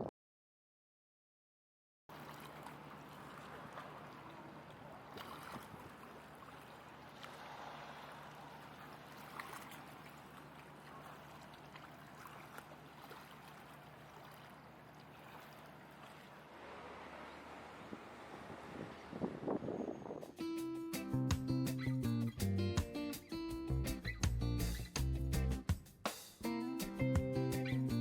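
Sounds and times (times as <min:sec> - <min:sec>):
gently moving water: 0:02.1 - 0:20.2
low steady hum: 0:02.1 - 0:20.2.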